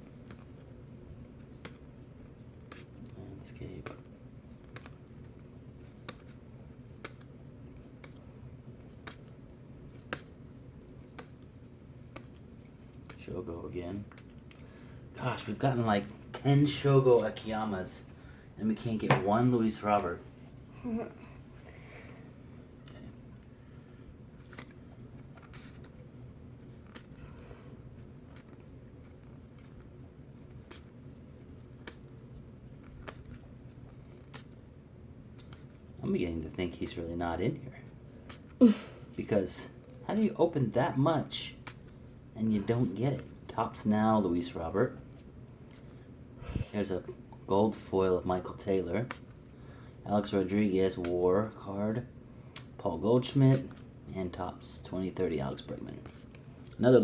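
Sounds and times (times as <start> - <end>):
steady low hum: 0.0 - 57.0
cards ticking against cards: 1.4 - 14.8, 27.9 - 34.6.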